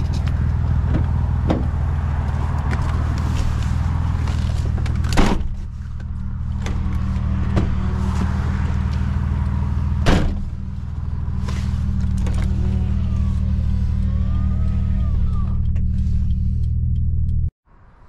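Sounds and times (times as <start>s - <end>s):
car engine idling: 0.0s - 17.5s
car door shutting: 4.7s - 5.6s, 10.0s - 10.5s.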